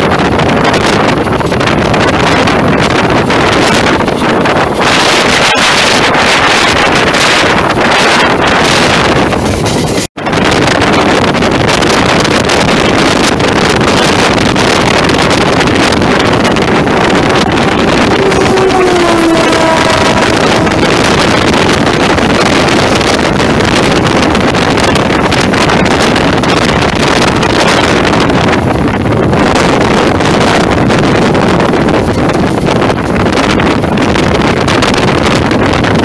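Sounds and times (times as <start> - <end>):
loud wind: 0.0 - 36.0
wheel-on-rail rumble: 0.0 - 36.0
locomotive horn: 15.3 - 23.1.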